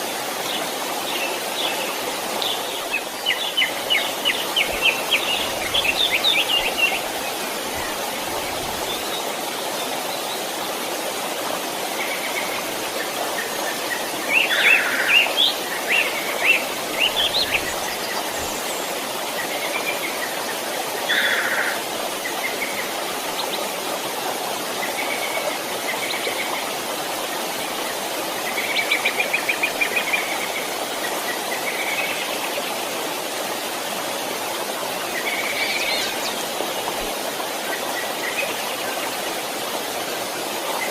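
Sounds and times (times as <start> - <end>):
small stream running: 0.0 - 40.9
birds chirping: 12.1 - 23.6.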